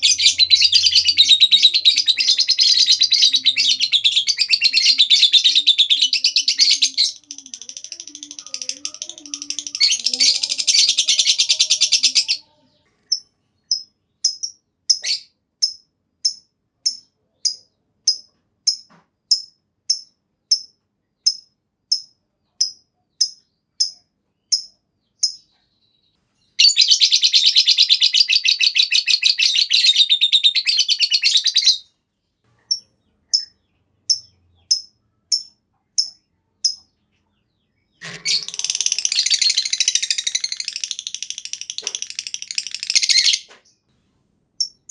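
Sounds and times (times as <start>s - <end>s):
lovebird rapid chattering: 0.0s - 12.4s, 13.1s - 25.4s, 34.1s - 36.9s, 38.0s - 43.5s
sharp bird chirps: 13.1s - 31.8s, 32.6s - 43.9s, 44.6s - 44.9s.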